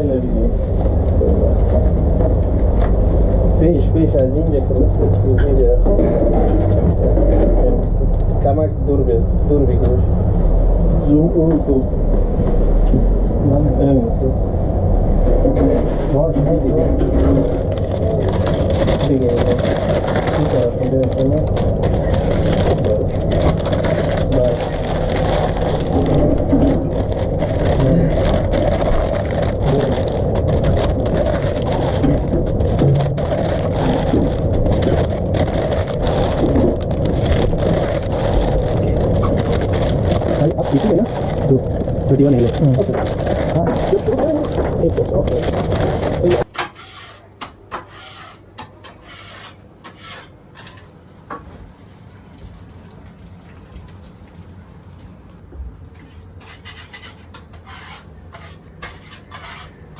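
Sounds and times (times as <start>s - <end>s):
low rumble of running machinery: 0.0s - 59.9s
steady low hum: 0.0s - 59.9s
faint clicks and scrapes: 15.5s - 50.9s, 51.8s - 59.9s
scraping rubbing strokes: 45.8s - 50.7s, 56.0s - 59.9s.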